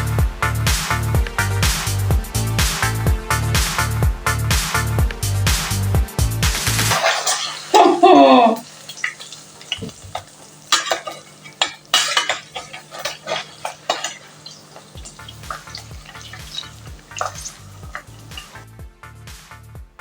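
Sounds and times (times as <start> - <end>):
utensils clinking against pans: 6.9 - 18.6.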